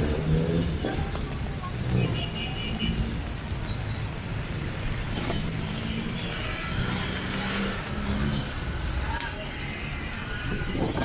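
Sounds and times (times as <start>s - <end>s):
steady traffic rumble: 0.0s - 11.0s
vehicle engines running: 0.0s - 11.0s.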